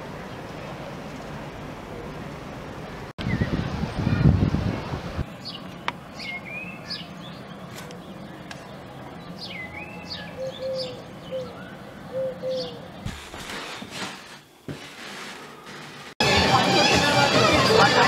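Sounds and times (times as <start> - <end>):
small birds chirping: 5.2 - 13.2
pigeon cooing: 10.4 - 12.8.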